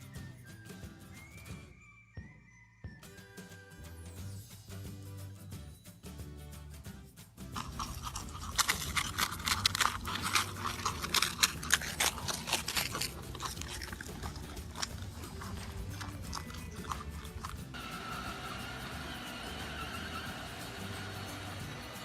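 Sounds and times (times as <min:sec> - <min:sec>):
background music: 0:00.0 - 0:22.0
animal chewing crunchy food: 0:07.5 - 0:18.0.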